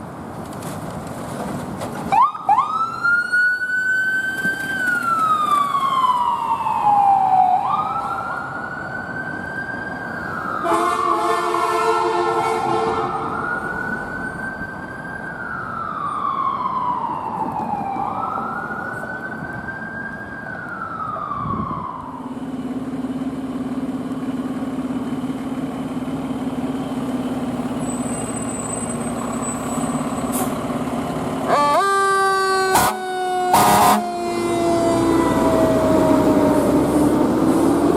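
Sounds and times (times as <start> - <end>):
truck and road noise: 0.0 - 37.9
fire truck siren wailing: 2.1 - 22.8, 26.2 - 37.9
truck air horn blast: 10.6 - 13.3, 32.7 - 35.4.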